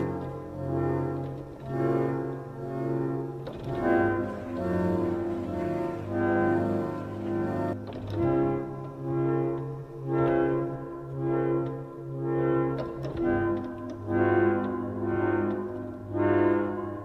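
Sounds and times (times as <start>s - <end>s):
slow instrumental music: 0.0s - 17.0s.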